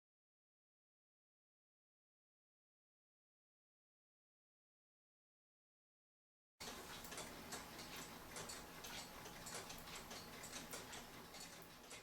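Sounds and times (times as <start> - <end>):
clock ticking: 6.6 - 12.0.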